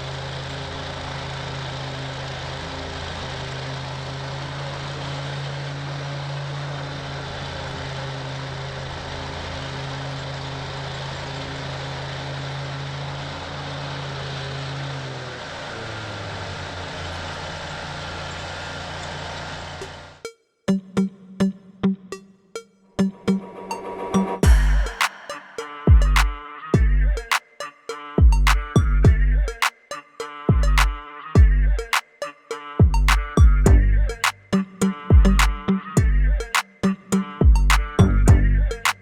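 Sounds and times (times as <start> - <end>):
mower engine running: 0.0 - 20.2.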